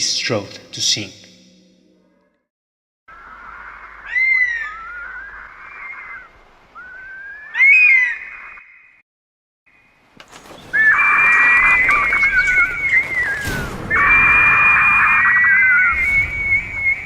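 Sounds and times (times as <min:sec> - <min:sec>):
bird whistling gliding notes: 0:03.2 - 0:09.0, 0:10.6 - 0:17.0.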